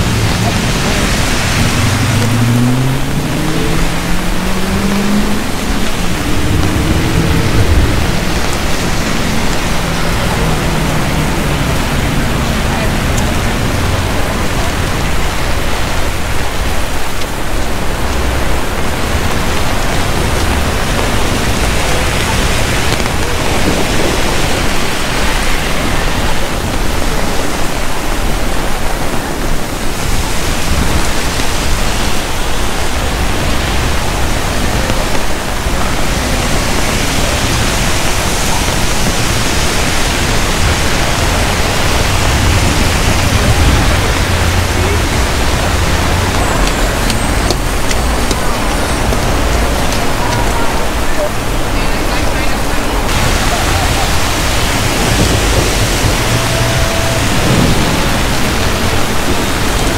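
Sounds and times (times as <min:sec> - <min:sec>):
heavy rain on streets: 0:00.0 - 0:59.9
low traffic rumble: 0:00.0 - 0:59.9.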